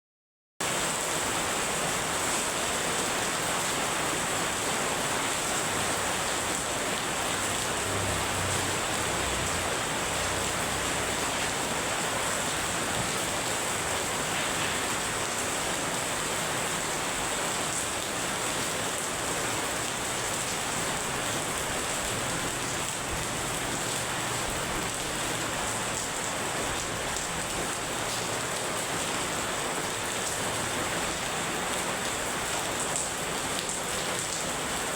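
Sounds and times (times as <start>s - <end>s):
very heavy rain hissing: 0.6s - 34.9s.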